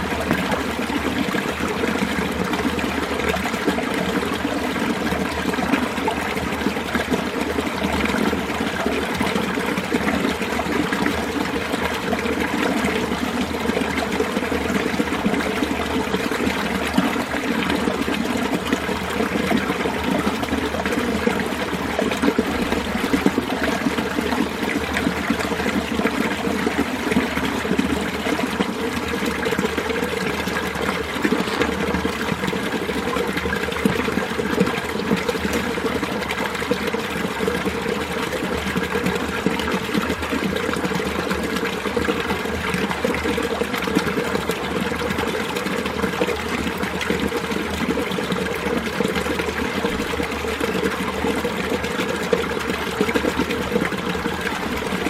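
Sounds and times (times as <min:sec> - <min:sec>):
stream water splashing over rocks: 0:00.0 - 0:55.0.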